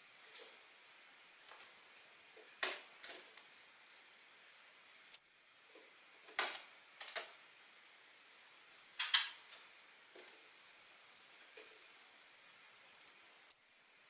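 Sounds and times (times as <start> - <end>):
high cricket-like tone: 0.0 - 3.1, 8.4 - 14.0.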